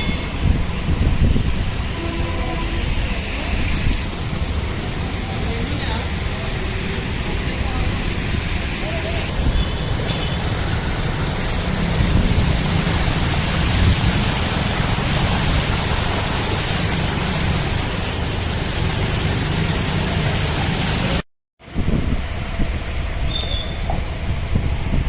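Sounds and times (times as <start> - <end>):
wind buffeting microphone: 0.2 - 2.0, 11.1 - 16.2, 21.6 - 25.0
heavy rain hissing: 0.2 - 21.2.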